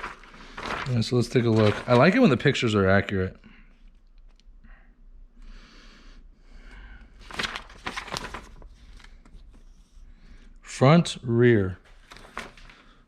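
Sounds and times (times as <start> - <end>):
paper rustling: 0.0 - 2.8, 7.2 - 10.0, 11.8 - 13.0.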